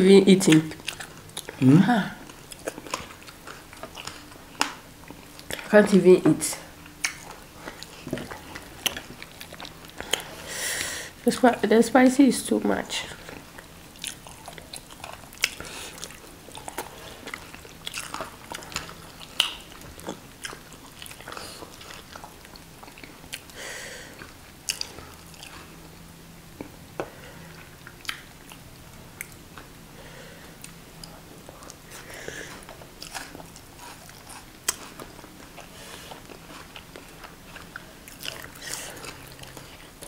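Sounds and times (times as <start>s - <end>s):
faint steady hum: 0.0s - 40.0s
wet chewing: 0.4s - 6.0s, 6.7s - 10.9s, 13.1s - 29.7s, 30.4s - 40.0s
lip smacks: 14.0s - 22.3s, 26.6s - 28.6s.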